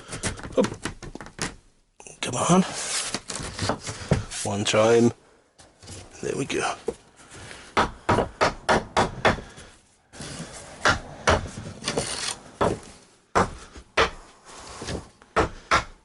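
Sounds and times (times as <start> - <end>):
board scraping on board: 10.1 - 10.8, 11.5 - 12.8.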